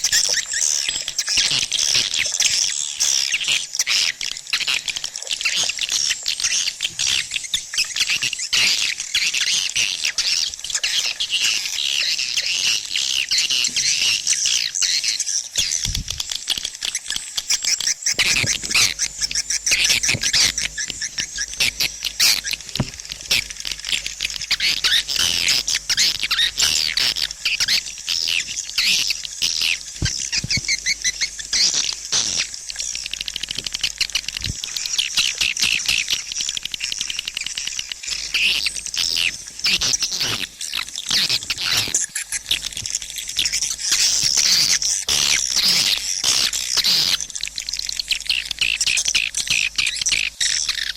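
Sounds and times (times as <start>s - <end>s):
swiftlets twittering: 16.9s - 33.0s.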